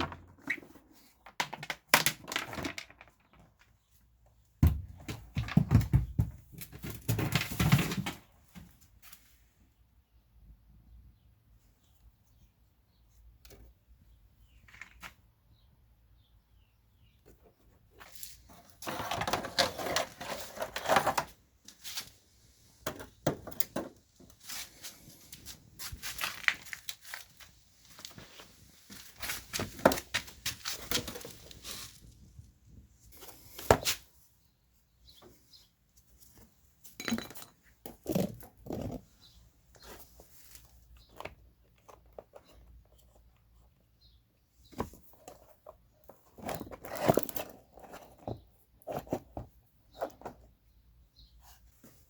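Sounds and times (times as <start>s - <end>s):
tools and parts clanking: 36.8s - 39.0s.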